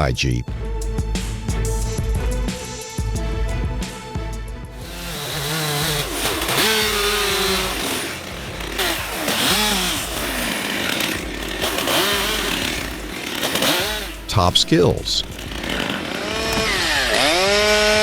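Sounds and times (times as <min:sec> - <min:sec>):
chainsaw revving: 0:04.8 - 0:18.0.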